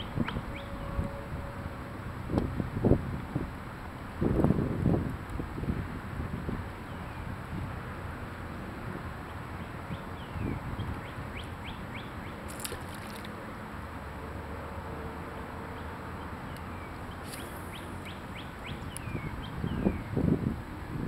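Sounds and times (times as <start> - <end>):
songbird singing: 0.0 - 1.8, 6.8 - 7.3, 9.2 - 13.4, 15.3 - 20.4.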